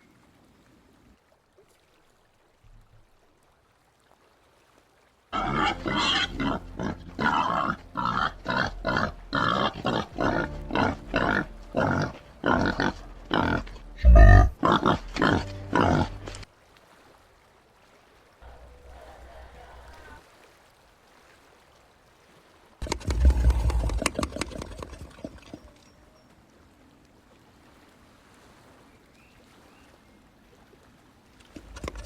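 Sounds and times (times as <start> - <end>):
peccary grunting: 5.4 - 16.4, 18.4 - 20.2, 22.8 - 25.5, 31.5 - 32.0.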